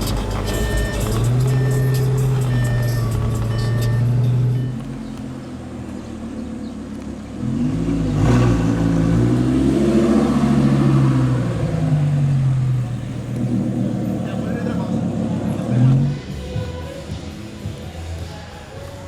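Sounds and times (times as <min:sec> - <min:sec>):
sharp exhaust crack: 0:00.0 - 0:05.0
car engine accelerating: 0:00.0 - 0:17.9.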